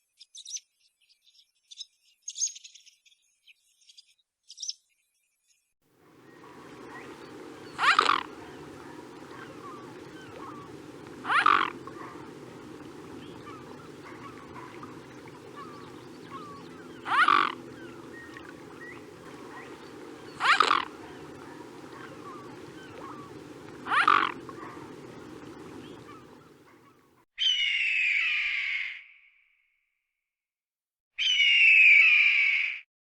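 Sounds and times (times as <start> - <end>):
steady background hum: 6.0 - 27.0
longer animal call: 6.2 - 26.9
short loud animal calls: 6.2 - 27.0.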